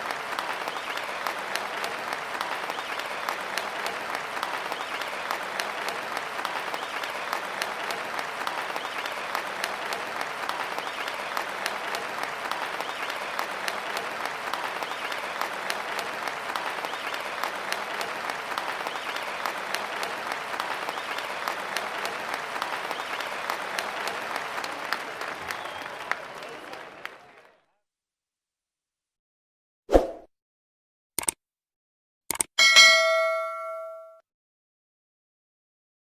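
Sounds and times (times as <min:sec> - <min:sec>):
crowd applauding: 0:00.0 - 0:27.7.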